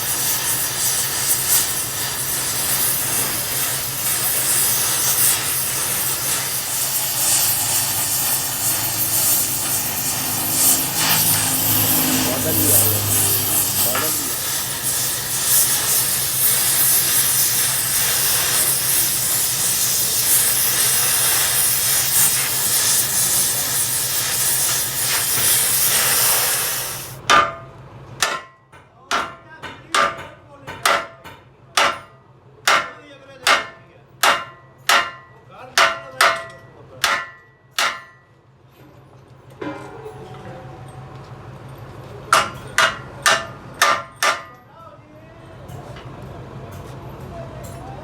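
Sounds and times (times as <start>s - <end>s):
loud steady hiss: 0.0s - 27.2s
hammer striking metal: 27.2s - 38.3s, 42.3s - 44.6s.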